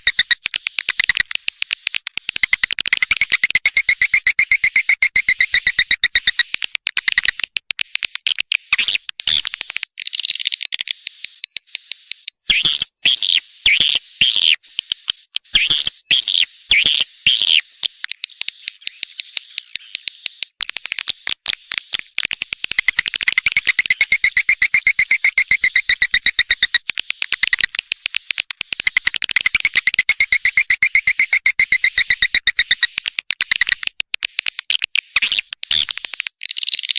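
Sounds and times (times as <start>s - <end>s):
swiftlets twittering: 0.0s - 7.5s, 21.1s - 36.2s.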